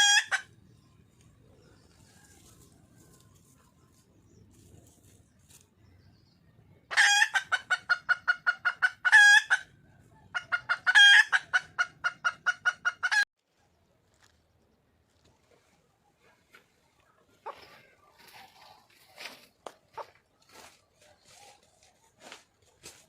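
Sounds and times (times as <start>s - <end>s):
hen clucking rapidly: 6.9s - 13.3s, 16.8s - 19.2s, 19.8s - 20.3s.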